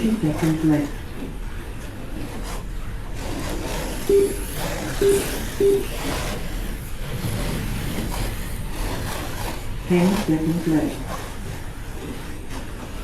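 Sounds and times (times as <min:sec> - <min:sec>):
slot car motors whirring: 0:03.4 - 0:06.9
short beeps: 0:04.1 - 0:04.4, 0:05.0 - 0:05.9.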